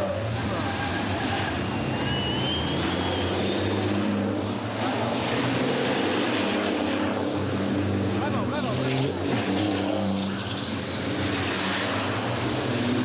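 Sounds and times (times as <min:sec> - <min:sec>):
heavy vehicle engine drone: 0:00.0 - 0:08.4.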